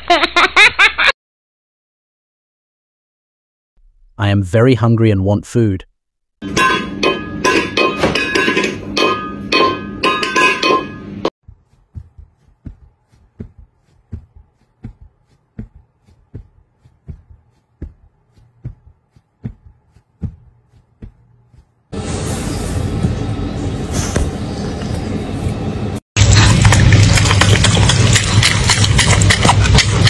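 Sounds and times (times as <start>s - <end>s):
metal bowl clattering on hard floor: 6.5s - 11.0s.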